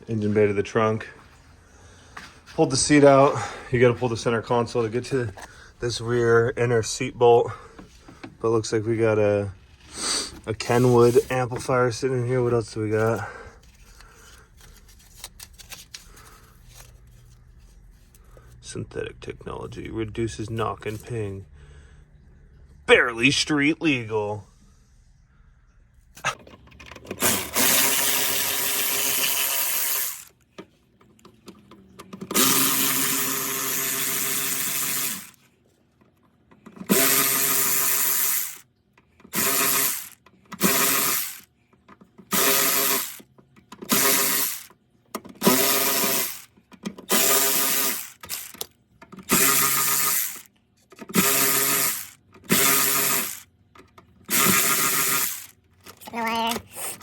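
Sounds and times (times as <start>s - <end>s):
power tool motor whirring: 27.2s - 30.3s, 32.3s - 35.4s, 36.8s - 38.6s, 39.3s - 41.5s, 42.3s - 43.2s, 43.8s - 44.7s, 45.4s - 50.5s, 51.1s - 53.5s, 54.3s - 55.6s.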